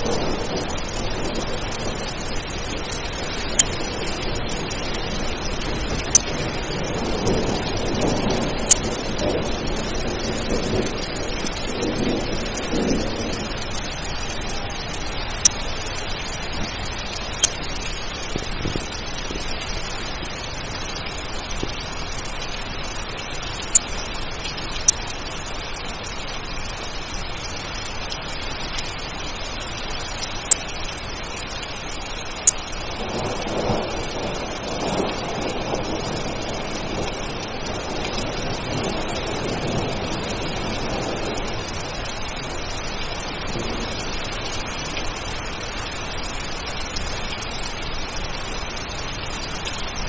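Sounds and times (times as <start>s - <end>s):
rumble of thunder: 0.0s - 22.2s, 32.9s - 45.4s
steady rain: 0.0s - 50.0s.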